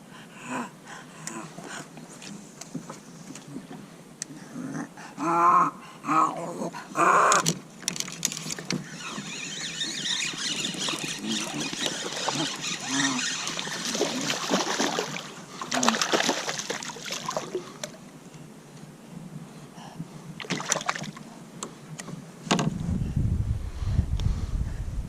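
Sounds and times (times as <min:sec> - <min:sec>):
water splashing around kayak: 0:10.2 - 0:18.1, 0:20.4 - 0:21.2
low rumble: 0:22.7 - 0:25.0.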